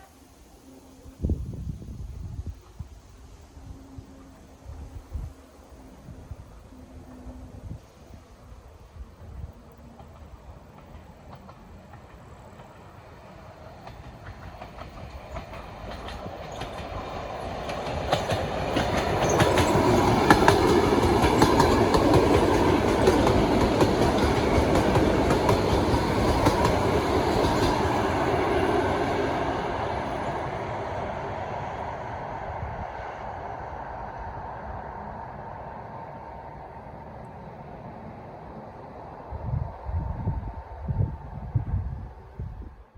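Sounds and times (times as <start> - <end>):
train wheels clattering over rails: 9.8 - 30.8.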